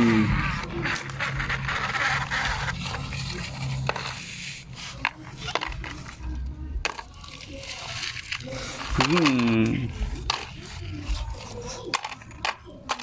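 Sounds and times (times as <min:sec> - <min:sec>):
plastic toys clicking: 0:05.0 - 0:13.0.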